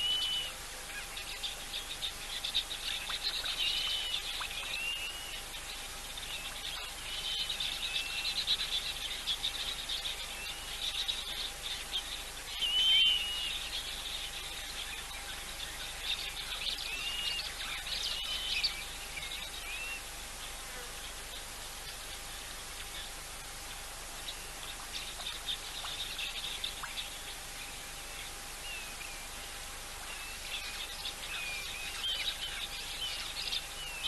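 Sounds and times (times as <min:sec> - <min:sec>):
whistled bird calls: 0:00.0 - 0:00.6, 0:02.4 - 0:05.4, 0:12.5 - 0:14.2
faint steady hum: 0:00.0 - 0:34.0
insects buzzing and chirring: 0:00.0 - 0:34.0.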